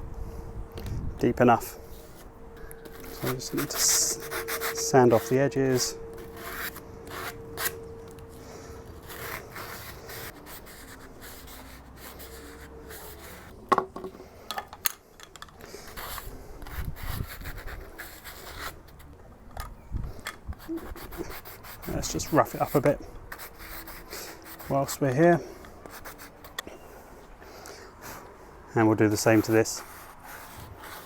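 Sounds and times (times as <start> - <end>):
hand sanding plastic pipe: 1.5 - 7.9, 20.6 - 26.6, 28.8 - 31.0.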